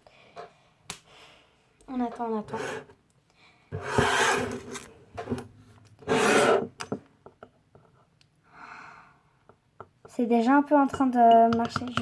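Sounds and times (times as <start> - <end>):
light knocks of spoon and bowl: 10.9 - 12.0.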